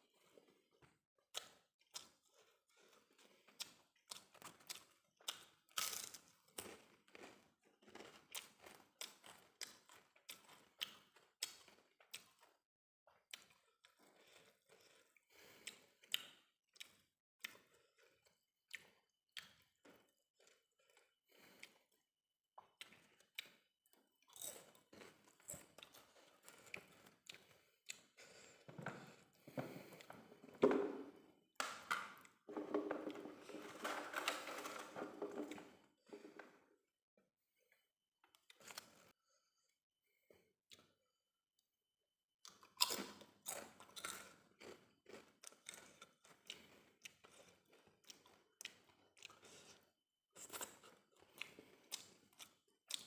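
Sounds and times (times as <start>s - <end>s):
crisp crunching and chewing: 1.4s - 12.6s, 22.7s - 28.2s, 42.5s - 53.0s.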